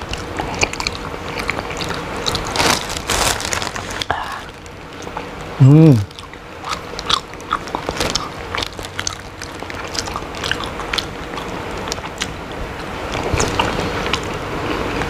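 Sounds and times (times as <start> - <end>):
person chewing and biting: 0.0 - 12.5, 13.1 - 14.8.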